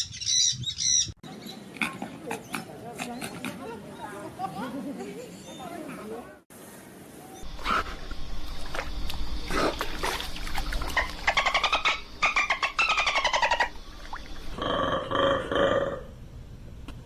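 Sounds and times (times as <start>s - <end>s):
animal rattling trills: 10.2s - 14.4s.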